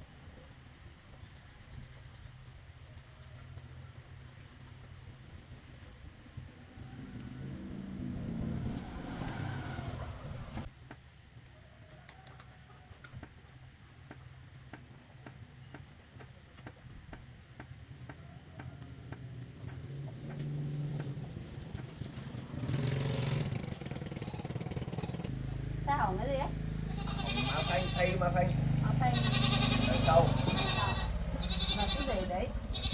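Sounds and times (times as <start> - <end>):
vehicle engine running: 4.6 - 10.7, 18.7 - 32.9.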